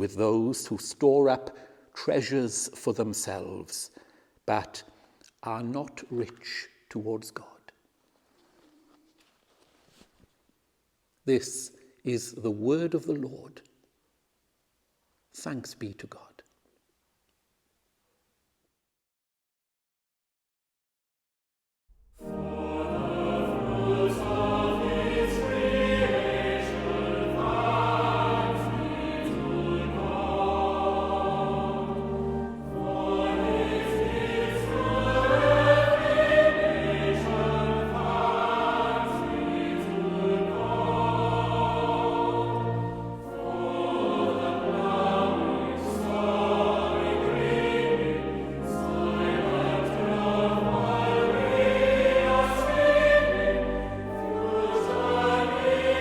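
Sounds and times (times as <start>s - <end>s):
choir singing a hymn: 22.2s - 56.0s
instrumental accompaniment: 22.2s - 56.0s.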